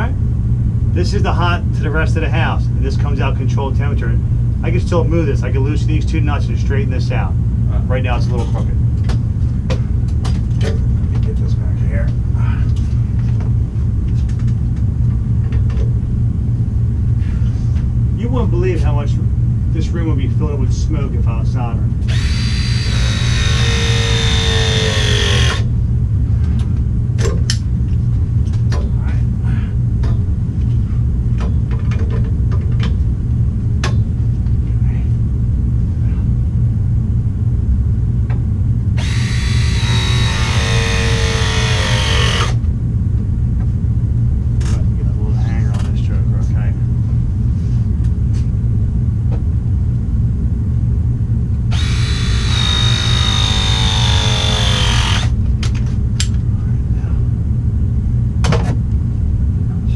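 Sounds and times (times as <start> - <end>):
low rumble: 0.0 - 59.9
steady low hum: 0.0 - 59.9
power tool motor running: 22.0 - 25.7, 39.0 - 42.6, 51.7 - 55.4.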